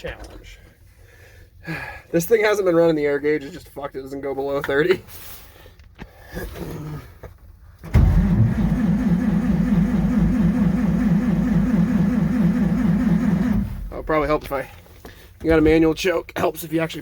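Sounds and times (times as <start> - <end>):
starter cranking engine: 7.9 - 14.0.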